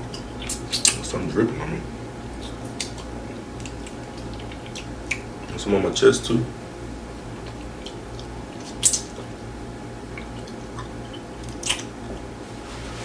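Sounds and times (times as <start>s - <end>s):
wet chewing and mouth smacks: 2.4s - 5.3s, 7.4s - 9.4s, 10.1s - 12.3s.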